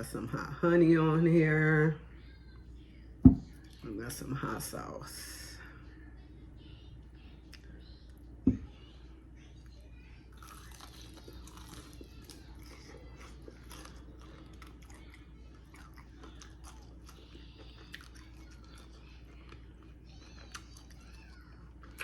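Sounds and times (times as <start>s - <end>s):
steady low hum: 0.0s - 22.0s
crunchy chewing: 10.3s - 22.0s.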